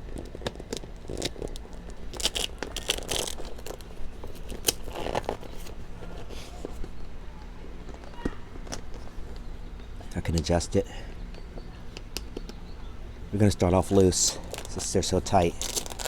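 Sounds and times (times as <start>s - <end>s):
straps scraping and rustling: 0.0s - 7.0s, 13.8s - 16.0s.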